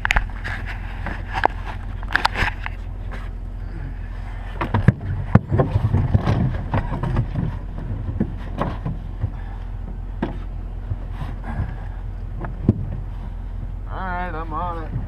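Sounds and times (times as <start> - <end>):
wind buffeting microphone: 4.4 - 15.0
sharp clicks and knocks: 4.5 - 13.7.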